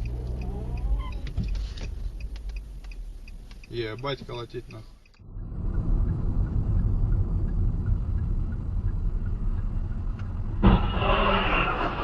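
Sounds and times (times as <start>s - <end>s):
car engine and road noise: 0.0s - 12.0s
loud thump: 10.6s - 11.0s.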